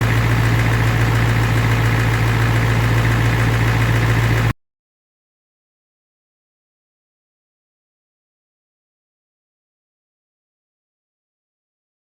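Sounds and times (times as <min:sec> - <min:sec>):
diesel engine idling: 0:00.0 - 0:04.6.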